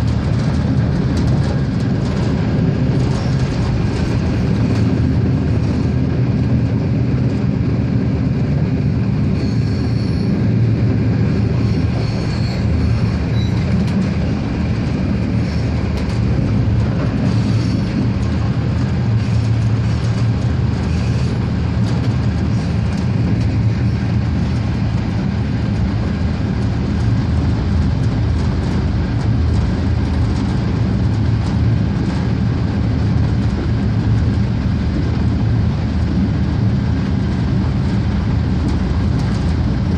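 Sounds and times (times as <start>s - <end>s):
diesel railcar engine and wheels: 0.0s - 39.9s
high-pitched wheel squeals: 9.4s - 10.4s, 11.6s - 13.7s.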